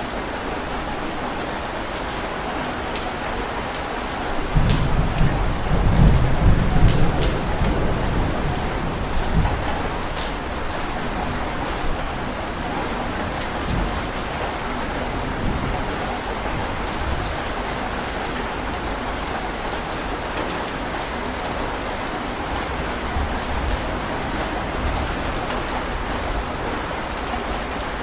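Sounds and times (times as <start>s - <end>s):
heavy rain falling: 0.0s - 28.0s
low rumble of thunder: 4.3s - 19.0s.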